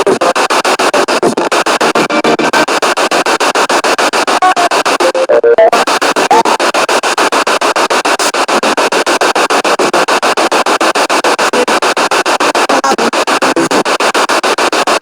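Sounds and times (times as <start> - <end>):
chopped radio static: 0.0 - 15.0
brief radio tones: 4.4 - 6.6.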